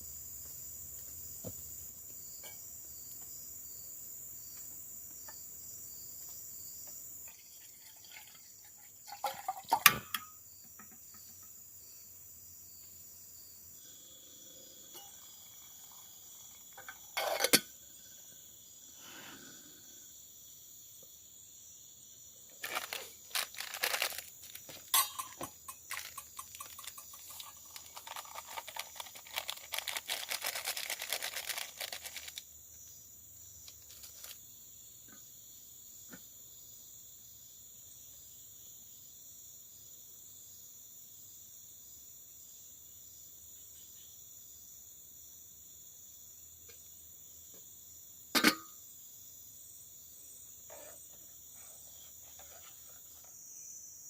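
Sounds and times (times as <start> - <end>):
insects droning: 0.0 - 54.0
rustling and clicking handling noise: 22.6 - 32.4, 33.6 - 34.4.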